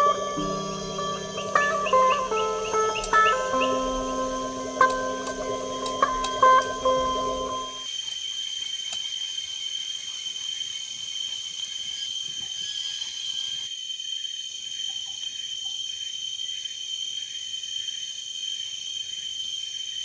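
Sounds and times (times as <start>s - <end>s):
layers of insect song: 0.0s - 20.0s
crickets shrilling: 7.8s - 20.0s.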